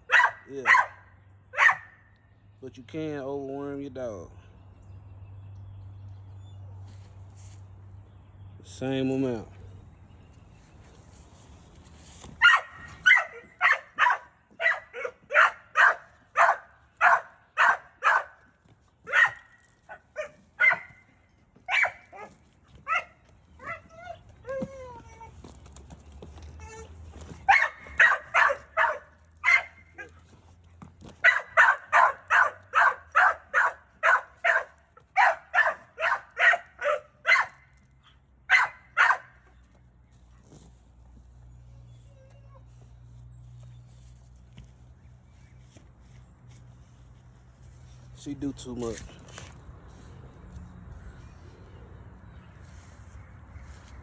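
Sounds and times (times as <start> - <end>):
dog barking: 0.0 - 2.0, 12.4 - 18.4, 19.1 - 21.0, 21.7 - 22.3, 27.5 - 30.1, 31.2 - 37.6, 38.5 - 39.4.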